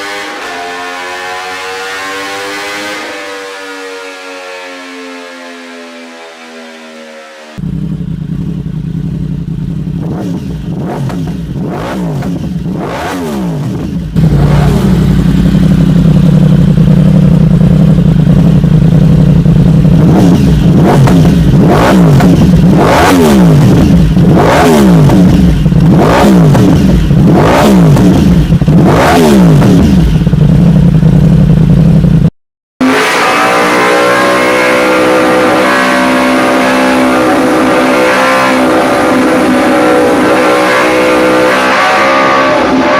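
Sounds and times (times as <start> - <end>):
steady high engine note: 0.0 - 9.9, 14.0 - 20.6, 32.8 - 42.9
motorcycle engine revving: 0.0 - 42.9.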